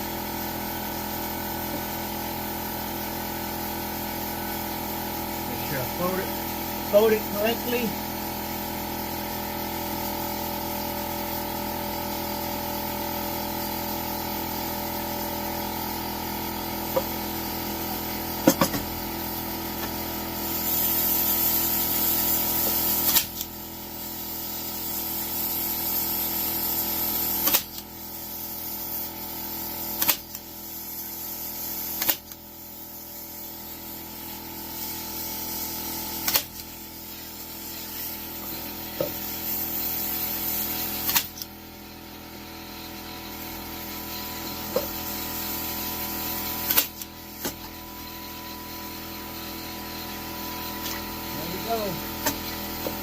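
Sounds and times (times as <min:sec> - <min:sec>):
steady machine hum: 0:00.0 - 0:27.4, 0:30.4 - 0:53.0.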